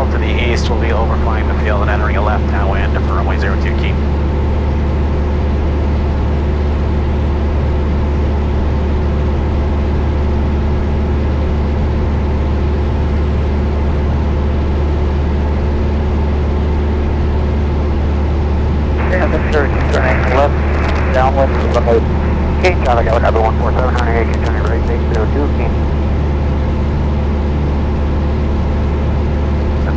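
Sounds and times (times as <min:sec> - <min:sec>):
airplane cabin engine drone: 0:00.0 - 0:29.9.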